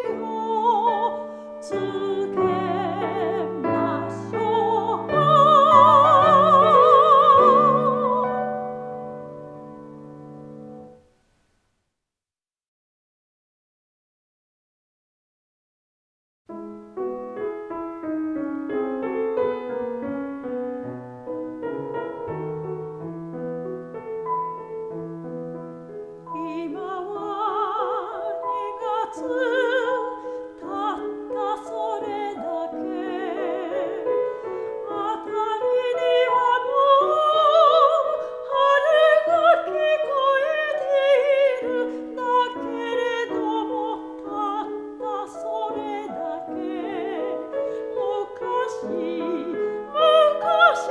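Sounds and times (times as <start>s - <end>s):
soprano singing with vibrato: 0.0s - 9.5s, 26.1s - 50.9s
solo piano: 0.0s - 11.4s, 16.5s - 50.9s.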